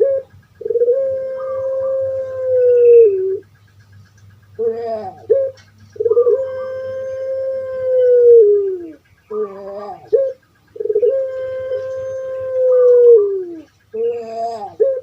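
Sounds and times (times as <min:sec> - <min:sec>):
dove cooing: 0:00.0 - 0:15.0
dove rough wavering note: 0:04.6 - 0:13.6.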